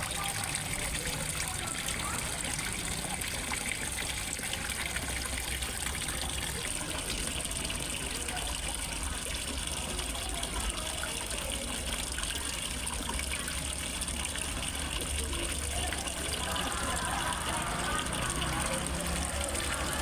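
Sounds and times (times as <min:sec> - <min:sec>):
small waterfall splashing into pond: 0:00.0 - 0:20.0.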